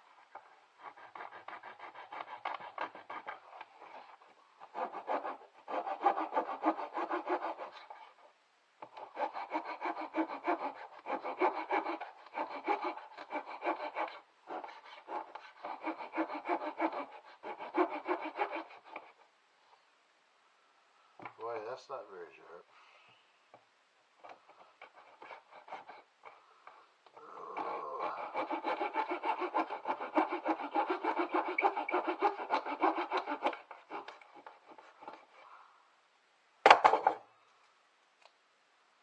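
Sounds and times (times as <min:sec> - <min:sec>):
hand saw cutting wood: 0:00.0 - 0:08.2, 0:08.8 - 0:19.2, 0:24.2 - 0:26.4, 0:27.6 - 0:35.4.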